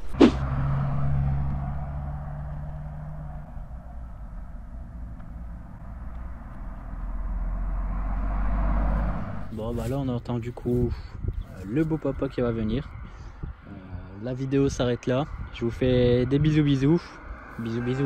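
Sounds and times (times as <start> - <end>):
car engine humming: 0.0 - 10.8
deep engine rumble: 0.0 - 18.0.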